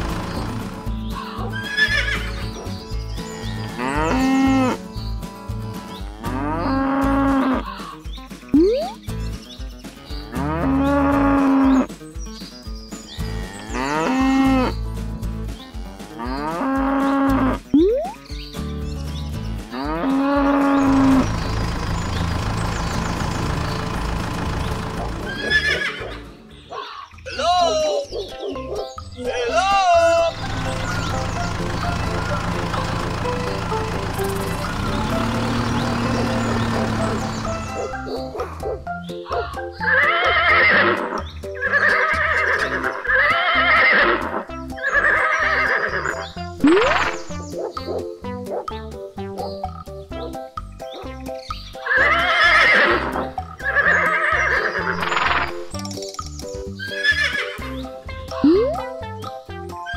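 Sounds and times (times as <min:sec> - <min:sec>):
horse whinnies: 0:01.3 - 0:02.4, 0:25.3 - 0:26.3, 0:39.3 - 0:47.3, 0:51.8 - 0:55.6, 0:56.8 - 0:57.6
cow mooing: 0:03.4 - 0:04.8, 0:06.0 - 0:07.7, 0:13.2 - 0:14.7, 0:19.6 - 0:21.2
children's music with steady beat: 0:06.8 - 0:21.1, 0:27.5 - 0:39.8, 0:46.2 - 0:51.9, 0:55.0 - 0:59.9.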